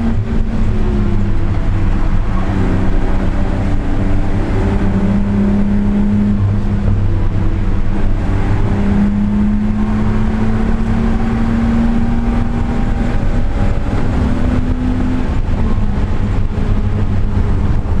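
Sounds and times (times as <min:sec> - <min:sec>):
car engine running: 0:00.0 - 0:18.0
road and wind rumble: 0:00.0 - 0:18.0.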